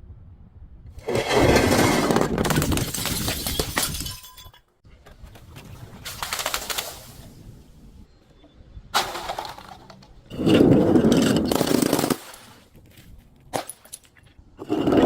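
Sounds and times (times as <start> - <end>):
glass bottles shattering: 2.2 - 4.7, 9.0 - 12.6.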